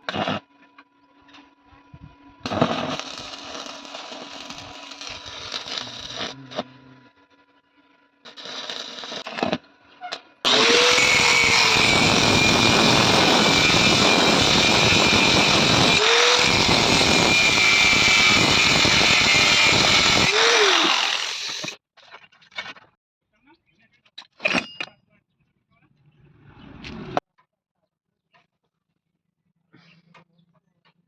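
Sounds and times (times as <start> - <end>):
power tool running on metal: 2.5 - 6.6, 8.3 - 9.6, 10.5 - 21.8.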